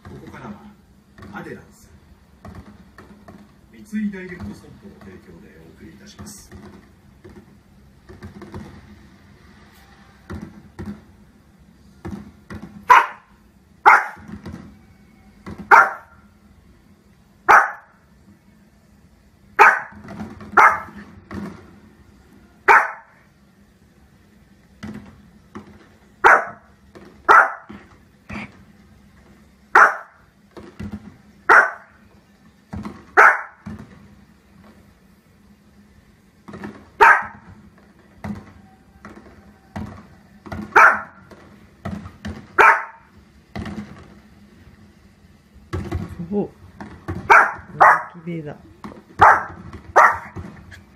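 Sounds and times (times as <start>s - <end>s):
small dog barking: 12.9s - 14.3s, 15.7s - 16.2s, 17.5s - 18.0s, 19.6s - 20.0s, 20.6s - 21.0s, 22.6s - 23.2s, 26.2s - 26.7s, 27.3s - 27.7s, 29.7s - 30.2s, 31.5s - 32.0s, 33.2s - 33.6s, 37.0s - 37.5s, 40.7s - 41.2s, 42.6s - 43.1s, 47.3s - 48.2s, 49.2s - 50.4s.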